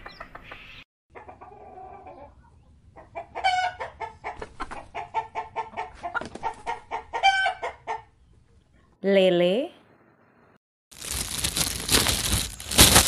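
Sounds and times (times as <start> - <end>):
chickens clucking: 0.0 - 8.7.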